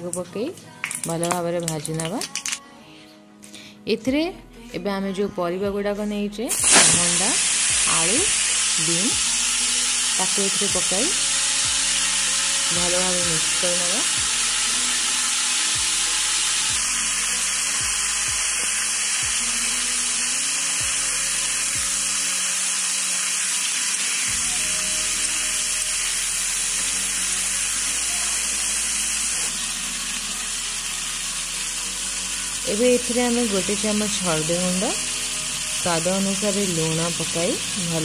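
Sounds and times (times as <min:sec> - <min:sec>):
vegetables sizzling in hot oil: 0:06.5 - 0:38.0.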